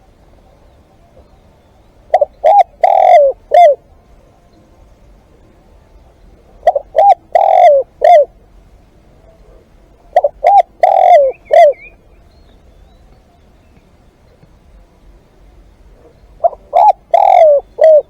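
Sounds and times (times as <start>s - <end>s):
dove cooing: 2.0s - 8.6s, 9.2s - 12.1s, 15.9s - 18.0s.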